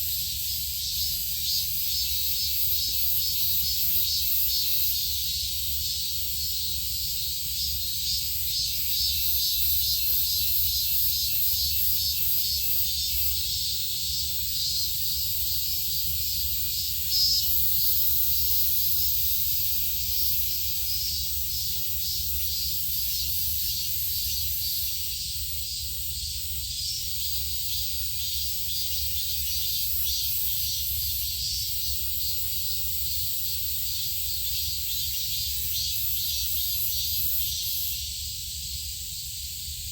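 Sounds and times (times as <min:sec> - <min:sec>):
insect chorus buzzing: 0:00.0 - 0:39.9.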